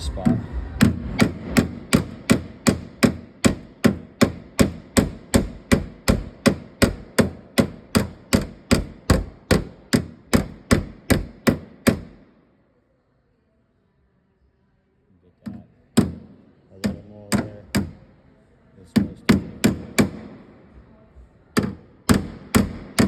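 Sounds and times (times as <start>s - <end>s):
hammer tapping sheet metal: 0.3s - 12.3s, 15.4s - 18.1s, 18.9s - 20.6s, 21.6s - 23.0s.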